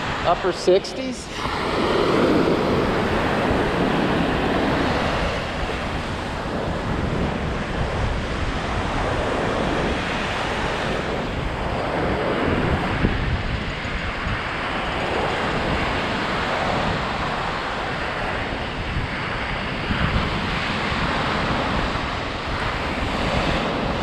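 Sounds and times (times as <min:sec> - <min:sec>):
lake waves washing on shore: 0:00.0 - 0:24.0
wind buffeting microphone: 0:00.0 - 0:24.0.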